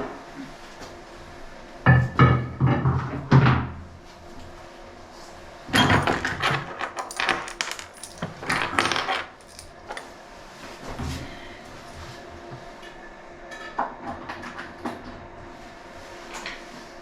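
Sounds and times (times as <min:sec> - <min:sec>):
small metal objects clinking: 0:05.8 - 0:10.1.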